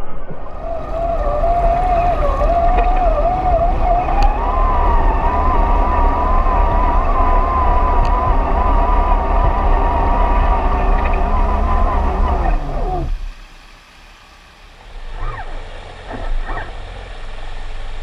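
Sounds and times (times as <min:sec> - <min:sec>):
low rumble: 0:00.0 - 0:13.4
electric motor whining: 0:00.4 - 0:13.4.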